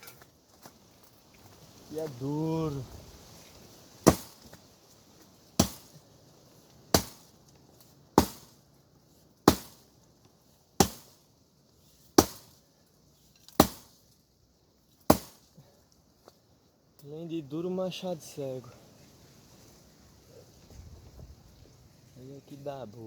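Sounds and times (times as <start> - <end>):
axe chopping wood: 4.0 - 4.5, 5.6 - 5.9, 6.9 - 7.3, 8.2 - 8.5, 9.5 - 9.8, 10.8 - 11.2, 12.2 - 12.5, 13.5 - 14.0, 15.1 - 15.4.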